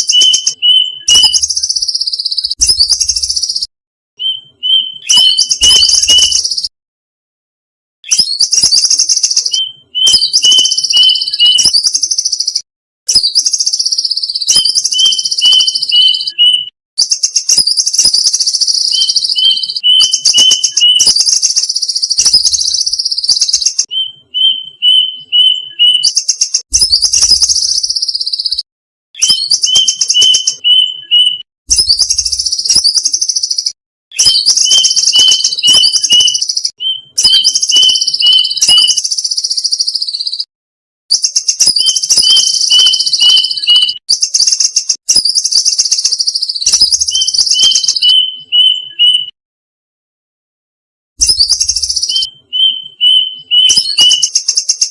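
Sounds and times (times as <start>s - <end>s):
cuckoo calling: 0.0s - 3.6s, 4.2s - 6.6s, 8.1s - 11.9s, 13.6s - 16.7s, 17.8s - 28.6s, 29.2s - 32.4s, 34.2s - 39.1s, 41.8s - 44.8s, 46.0s - 49.3s, 51.4s - 54.9s.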